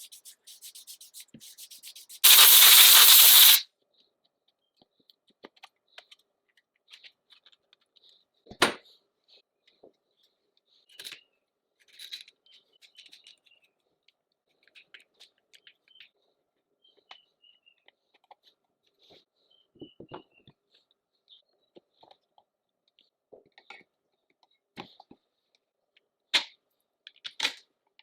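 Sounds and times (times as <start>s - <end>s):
loud steady hiss: 2.2s - 3.6s.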